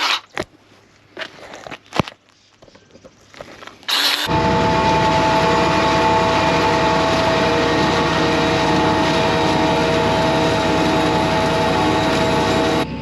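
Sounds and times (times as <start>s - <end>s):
tractor engine hum: 3.9s - 13.0s
high whine: 4.2s - 13.0s.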